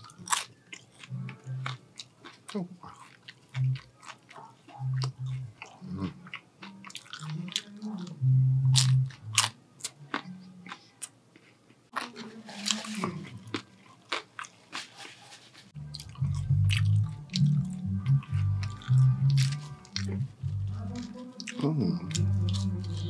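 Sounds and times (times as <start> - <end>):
crunching and chewing food: 0.0 - 23.0
paper napkin rustling: 14.7 - 15.8.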